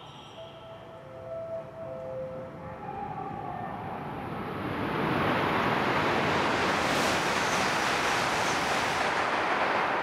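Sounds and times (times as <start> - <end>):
train passing close by: 0.1 - 10.0.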